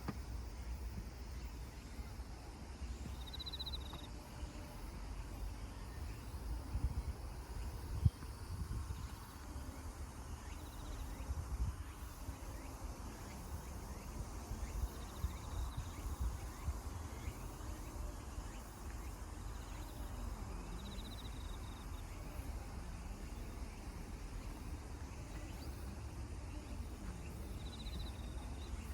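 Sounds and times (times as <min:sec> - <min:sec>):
faint insect trills: 0:00.0 - 0:28.9
wind rumbling on microphone: 0:05.0 - 0:18.3.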